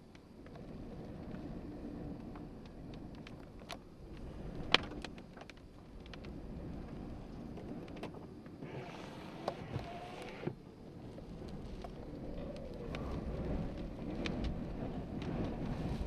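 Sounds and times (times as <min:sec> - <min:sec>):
low wind rumble: 0:00.0 - 0:16.0.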